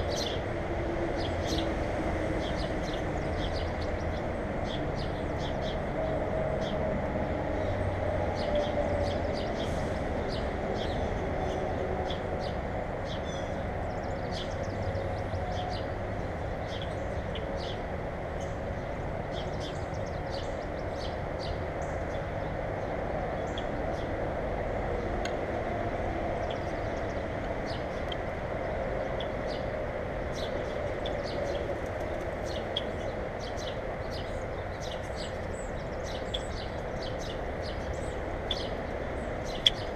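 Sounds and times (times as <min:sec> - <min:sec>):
small birds chirping: 0:26.3 - 0:39.9.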